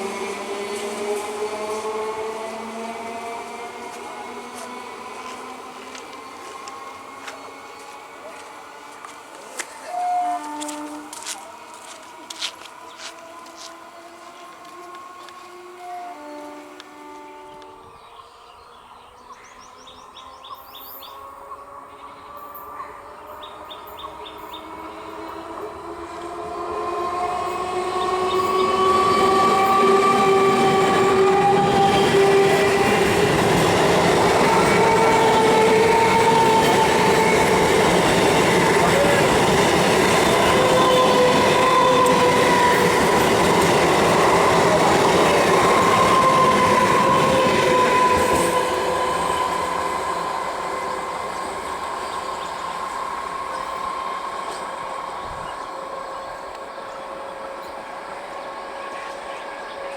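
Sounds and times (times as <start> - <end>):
steady tones shifting in pitch: 10.6 - 59.9
train wheels rattling on rails: 20.6 - 59.9.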